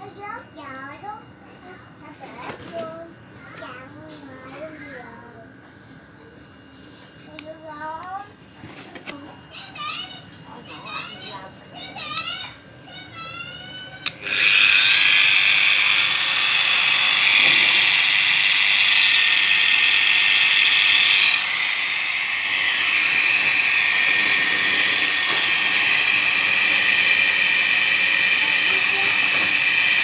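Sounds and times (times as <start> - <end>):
angle grinder whining: 13.9 - 30.0.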